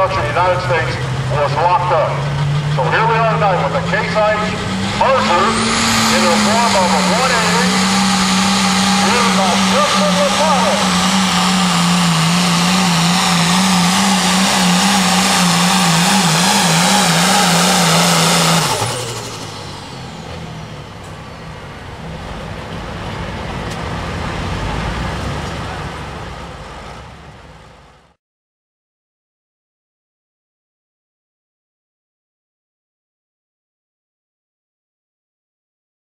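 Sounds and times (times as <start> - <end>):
low engine rumble: 0.0 - 28.2
tractor engine running flat out: 0.0 - 28.2.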